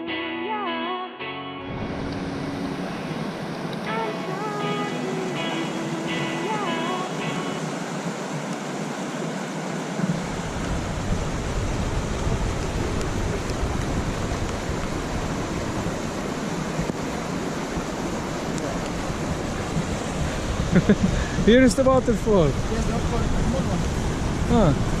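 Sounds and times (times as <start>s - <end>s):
waterfall roaring: 1.7s - 25.0s
wind buffeting microphone: 9.9s - 25.0s.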